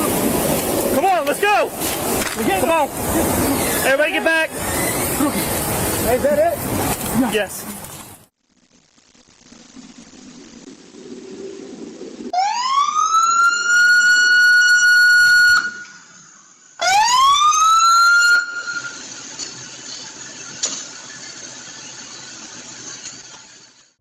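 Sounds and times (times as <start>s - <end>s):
emergency vehicle siren: 12.3s - 16.1s, 16.8s - 19.0s.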